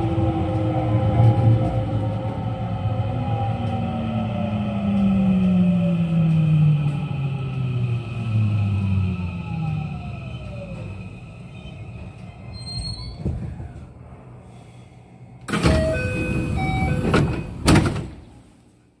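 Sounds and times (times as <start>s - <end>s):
train doors hissing open: 15.4s - 18.2s.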